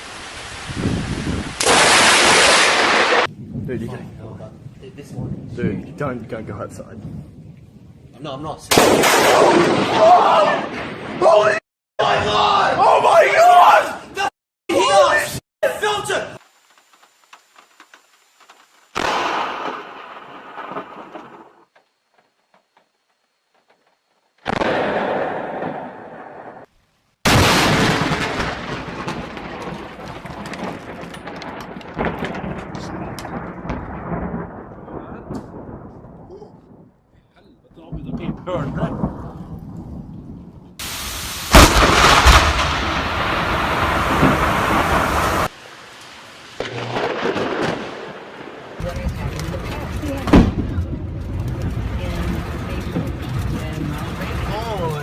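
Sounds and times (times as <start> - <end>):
heavy rain hiss: 0.0 - 3.3, 40.8 - 50.4
thunder crack: 0.6 - 8.0, 8.6 - 11.6, 19.0 - 21.7, 24.4 - 37.1, 37.8 - 45.6, 46.6 - 55.0
faint rain patter: 43.6 - 55.0.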